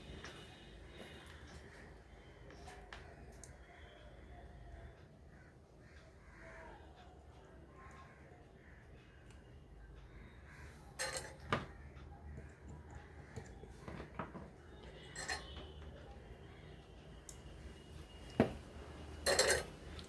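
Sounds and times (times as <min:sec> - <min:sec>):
small tools clinking on workbench: 0:19.2 - 0:19.7.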